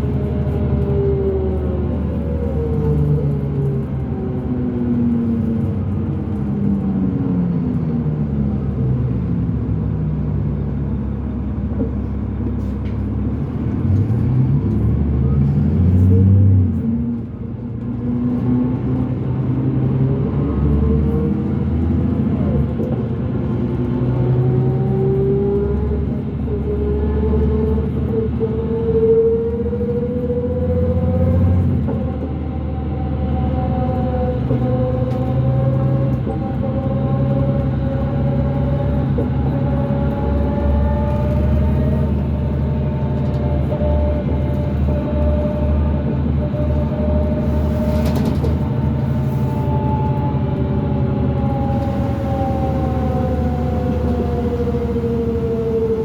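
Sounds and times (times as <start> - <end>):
bus diesel engine pulling: 0.0 - 56.0.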